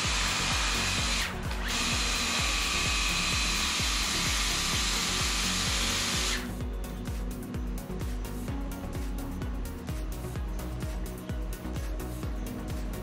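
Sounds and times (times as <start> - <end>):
electric pump whine: 0.0 - 6.7
background music with beat: 0.0 - 13.0.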